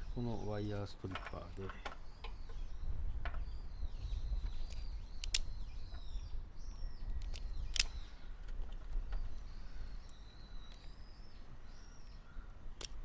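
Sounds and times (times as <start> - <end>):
birds chirping: 0.0 - 13.0
wire stripper clicking: 4.6 - 6.1, 7.2 - 8.0, 12.8 - 13.0.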